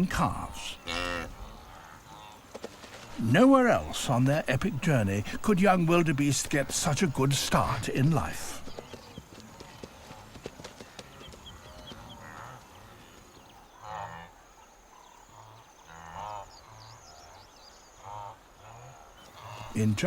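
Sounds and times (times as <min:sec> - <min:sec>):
wildebeest nasal grunting calls: 0:00.0 - 0:02.4, 0:13.8 - 0:20.0.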